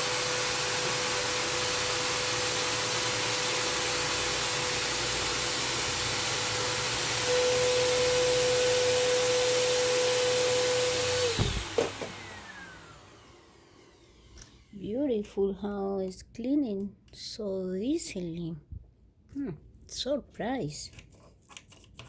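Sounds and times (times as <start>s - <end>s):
vacuum cleaner whining: 0.0s - 14.9s.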